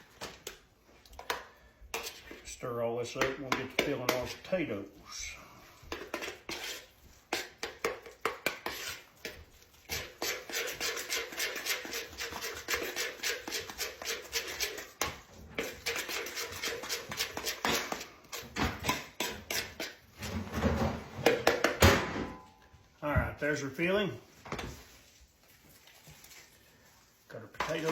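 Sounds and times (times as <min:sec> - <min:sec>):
utensil scraping a bowl: 0:00.4 - 0:20.6, 0:25.8 - 0:27.9.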